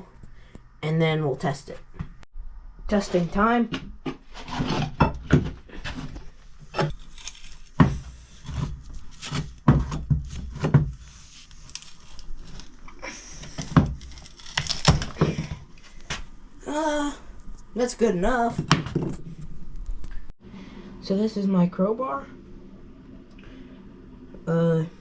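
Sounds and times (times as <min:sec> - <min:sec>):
crowbar knocking and scraping: 0:03.6 - 0:11.3
wood cracking and creaking: 0:03.7 - 0:15.9.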